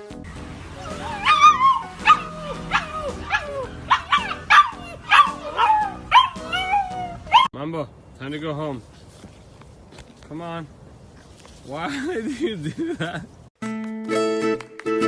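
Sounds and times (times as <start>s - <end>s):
background music: 0.0s - 7.4s, 13.6s - 15.0s
dog yipping: 0.8s - 7.5s.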